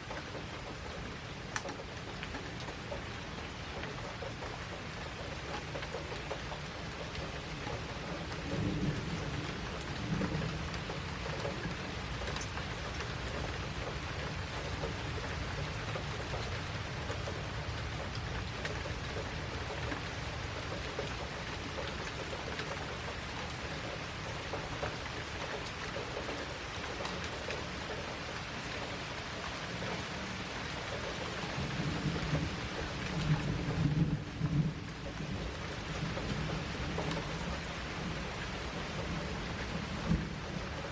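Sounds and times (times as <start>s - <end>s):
steady rain: 0.0s - 40.9s
thunder rolling: 8.3s - 11.7s.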